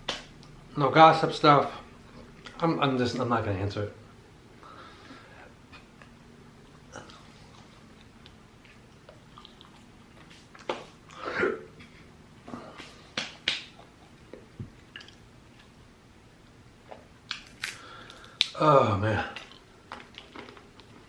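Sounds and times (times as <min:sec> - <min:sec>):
person chewing food: 0:05.7 - 0:11.2, 0:12.8 - 0:15.8, 0:16.8 - 0:18.6, 0:19.3 - 0:21.0.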